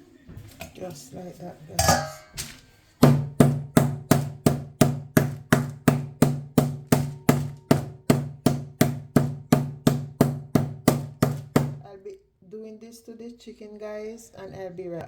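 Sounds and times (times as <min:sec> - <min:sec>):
meat pounding knocks on board: 0:03.0 - 0:11.8.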